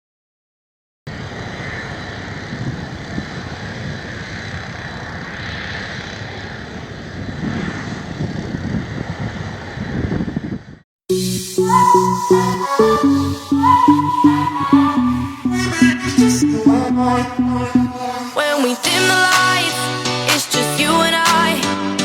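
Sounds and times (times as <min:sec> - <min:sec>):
ship engines droning: 0:11.1 - 0:19.9.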